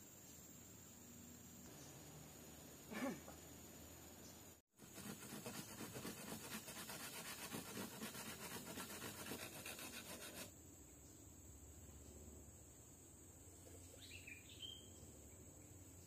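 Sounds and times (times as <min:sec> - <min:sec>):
faint insects: 0:00.0 - 0:16.0
rhythmic scraping on wood: 0:04.8 - 0:10.5.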